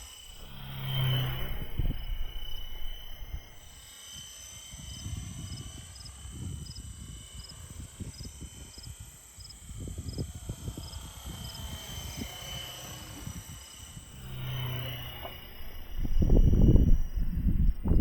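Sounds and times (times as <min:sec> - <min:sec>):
faint high whine: 0:00.0 - 0:04.0, 0:10.6 - 0:18.0
wind buffeting microphone: 0:00.2 - 0:03.8, 0:14.2 - 0:18.0
small chirp: 0:14.2 - 0:18.0.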